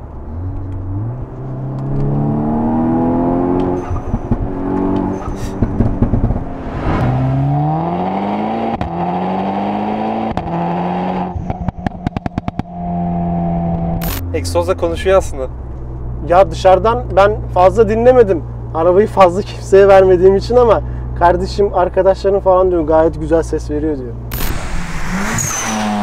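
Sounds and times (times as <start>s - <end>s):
turbo car engine accelerating: 0.0s - 26.0s
exhaust pops and crackles: 3.6s - 6.5s, 11.3s - 12.8s
dump valve whooshes: 6.6s - 7.5s, 24.3s - 26.0s.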